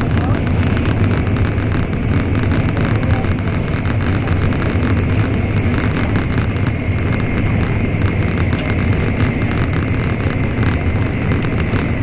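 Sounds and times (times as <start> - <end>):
fine rapid clatter: 0.0 - 12.0
train cabin rumble: 0.0 - 12.0.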